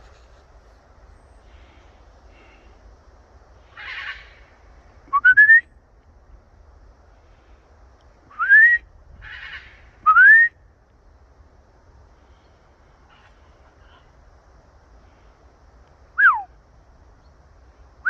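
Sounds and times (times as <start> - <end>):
parrot raspy calls: 3.7 - 4.4, 9.2 - 9.9.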